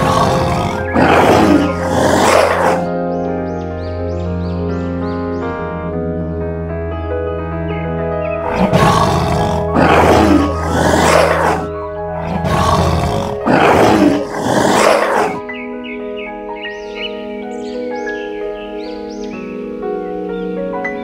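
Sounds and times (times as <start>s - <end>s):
tiger roaring: 0.0s - 3.0s, 8.4s - 15.4s
background music: 0.0s - 21.0s.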